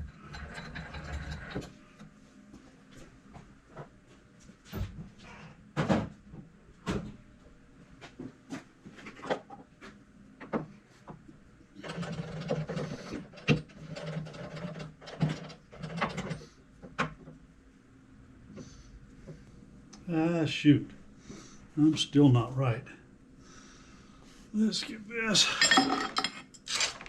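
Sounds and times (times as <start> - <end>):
metal rattling and scraping: 0.0 - 1.8.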